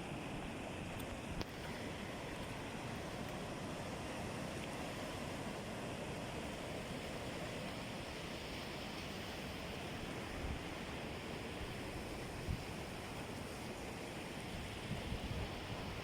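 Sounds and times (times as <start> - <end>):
sea surf: 0.0 - 16.0
wind buffeting microphone: 14.7 - 16.0.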